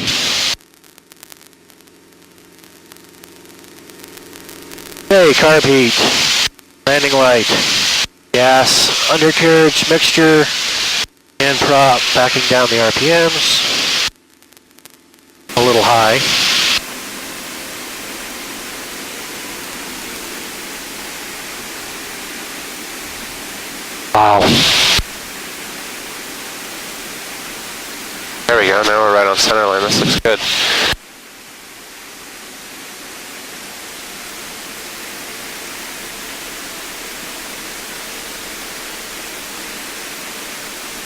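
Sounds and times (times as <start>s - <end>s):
aircraft cockpit hiss: 0.0s - 0.6s, 5.0s - 14.1s, 15.5s - 41.0s
cockpit noise through intercom: 5.1s - 14.1s, 15.5s - 16.8s, 24.1s - 25.1s, 28.4s - 31.0s.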